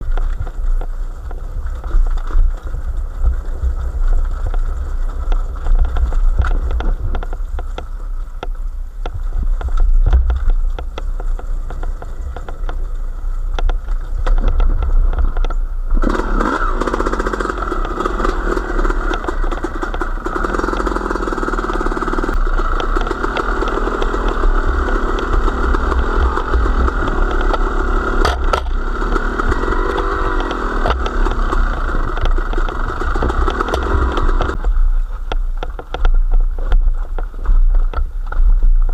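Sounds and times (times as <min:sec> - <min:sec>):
low rumbling: 0:00.0 - 0:38.9
small engine running: 0:15.9 - 0:34.6.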